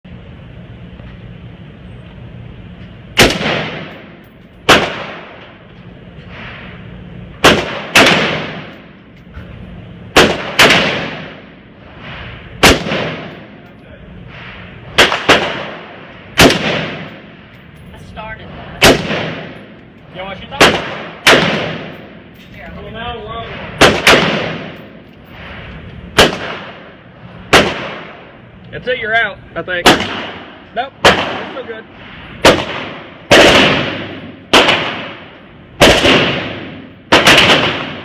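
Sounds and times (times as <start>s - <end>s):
rifle shots with echo: 3.2s - 5.6s, 7.4s - 9.0s, 10.1s - 13.6s, 14.3s - 17.4s, 18.6s - 19.8s, 20.4s - 22.3s, 23.5s - 25.0s, 26.1s - 28.4s, 29.8s - 38.0s.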